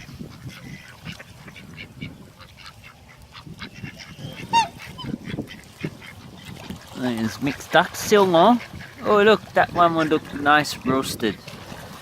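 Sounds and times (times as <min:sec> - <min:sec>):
ducks and geese calling: 0:00.0 - 0:10.6.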